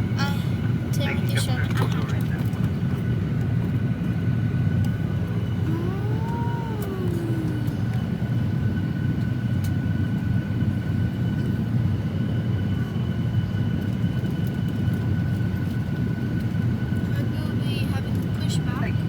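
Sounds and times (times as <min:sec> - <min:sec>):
ventilation running: 0:04.3 - 0:09.0
low rumble: 0:04.9 - 0:09.6
high whines: 0:05.6 - 0:08.7.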